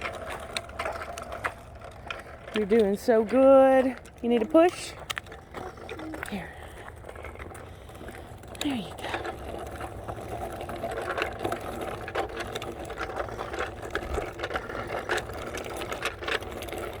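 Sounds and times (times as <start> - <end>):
bicycle rattling and clicking: 0.0 - 17.0.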